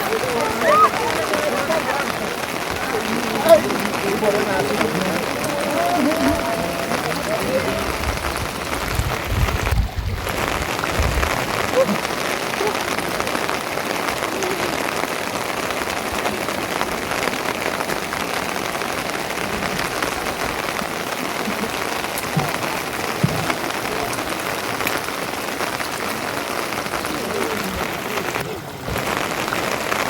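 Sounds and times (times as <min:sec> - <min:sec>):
steady rain patter: 0:00.0 - 0:30.0.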